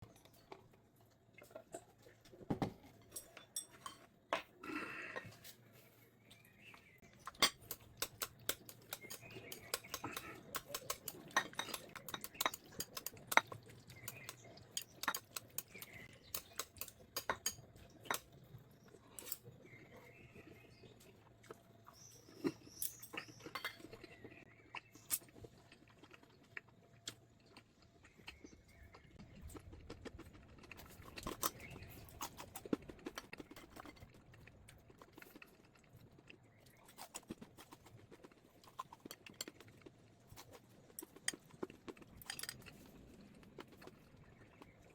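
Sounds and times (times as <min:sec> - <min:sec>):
chewing: 0:06.7 - 0:44.9
utensils clicking against bowls: 0:07.3 - 0:18.3.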